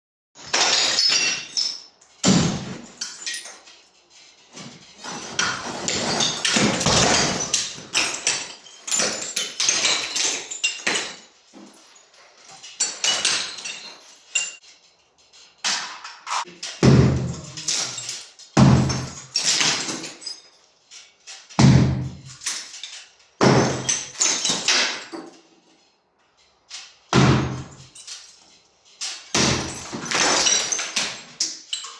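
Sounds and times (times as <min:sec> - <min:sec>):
broken brick crashing: 0:00.4 - 0:03.5, 0:05.0 - 0:11.0, 0:16.8 - 0:18.0, 0:18.6 - 0:20.2, 0:27.1 - 0:27.9, 0:29.3 - 0:31.3.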